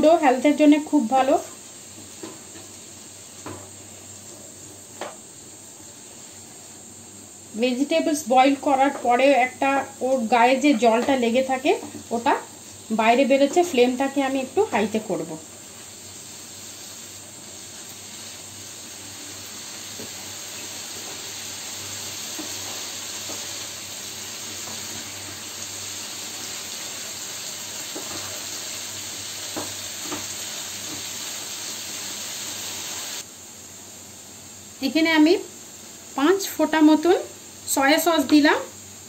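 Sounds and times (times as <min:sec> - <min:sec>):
vegetables sizzling in a frying pan: 0:00.0 - 0:39.0
wooden spatula knocking in pan: 0:29.5 - 0:31.1.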